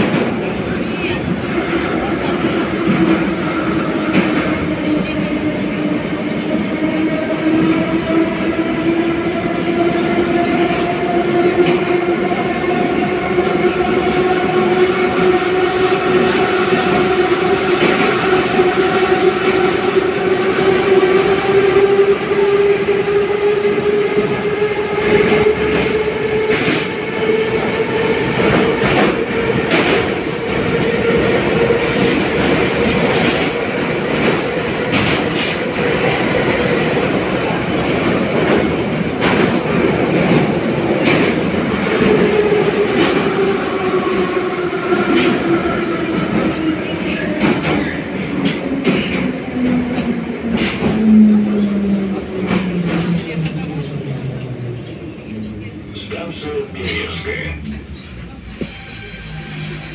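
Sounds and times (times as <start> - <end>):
wheels rumbling on rails: 0.0 - 59.9.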